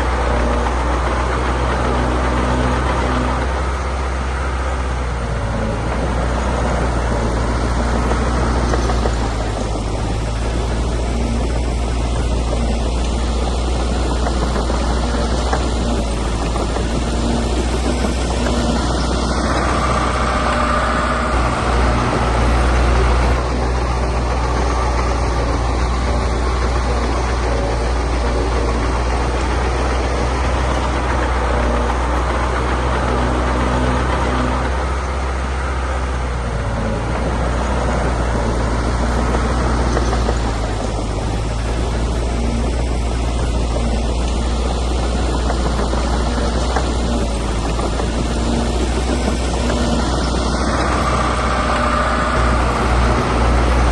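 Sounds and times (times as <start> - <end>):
heavy machinery diesel engine drone: 0.0 - 53.9.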